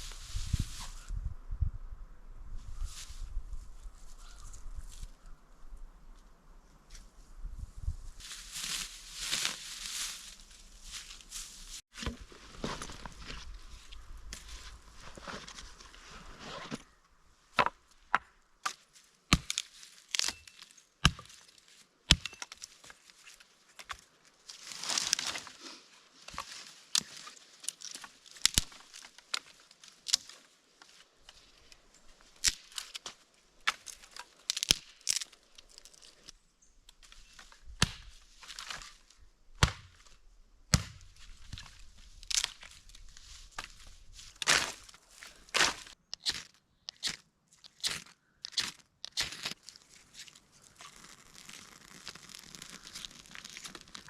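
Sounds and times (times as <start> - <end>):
dry wood cracking and snapping: 17.6 - 25.5, 26.2 - 36.3, 36.9 - 54.0
wood rustling and tearing: 18.6 - 36.3, 40.9 - 54.0.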